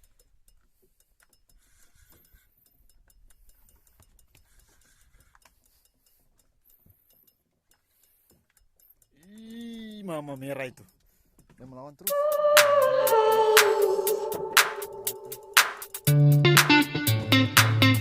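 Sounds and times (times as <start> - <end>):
faint ticks and clicks: 0.0 - 12.1.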